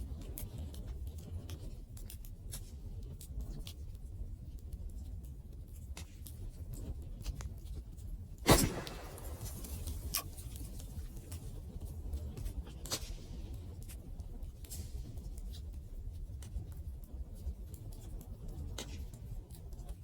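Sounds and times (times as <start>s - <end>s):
wood fire crackling: 8.5s - 10.5s
loud fire pop: 8.5s - 10.6s.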